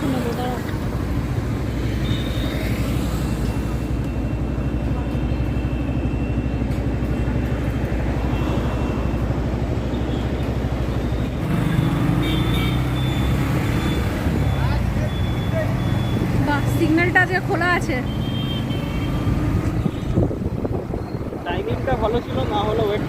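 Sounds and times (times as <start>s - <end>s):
motorcycle engine rumble: 0.0s - 17.6s
road and wind noise: 0.0s - 23.0s.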